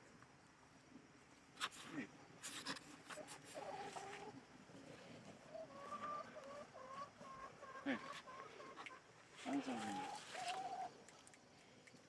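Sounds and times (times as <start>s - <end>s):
chickens clucking: 2.5s - 11.2s.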